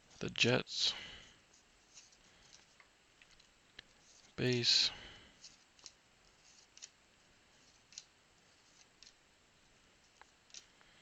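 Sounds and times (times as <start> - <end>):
trading cards sliding and flipping: 1.5 - 9.2.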